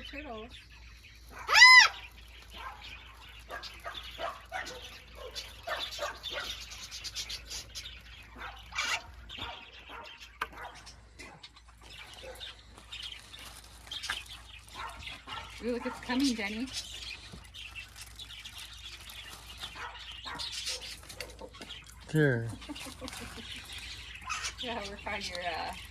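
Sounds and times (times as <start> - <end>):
birds chirping: 0.0 - 25.9
loud high bird call: 1.3 - 2.2.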